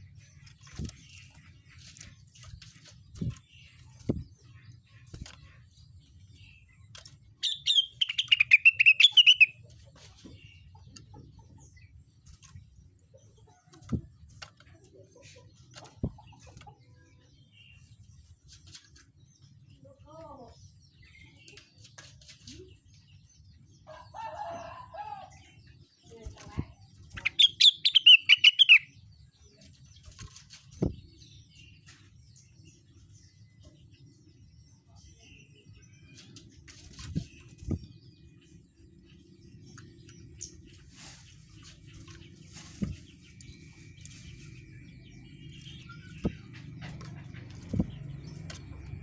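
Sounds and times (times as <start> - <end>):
songbird warbling: 7.4 - 9.6, 26.1 - 29.0
soft thumps: 30.1 - 31.2, 40.7 - 44.7, 45.4 - 49.0.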